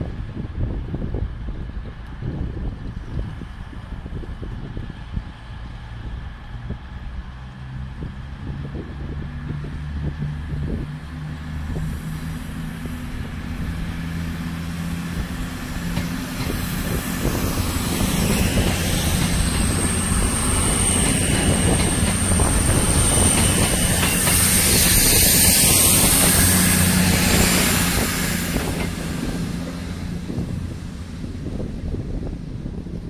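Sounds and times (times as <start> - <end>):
diesel train engines running: 0.0 - 33.0
train wheels rolling on rails: 8.5 - 33.0.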